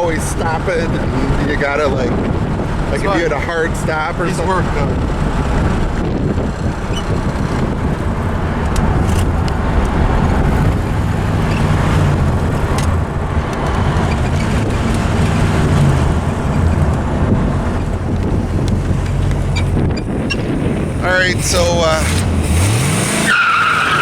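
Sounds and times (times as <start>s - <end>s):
car engine running: 0.0s - 24.0s
road noise: 0.0s - 24.0s.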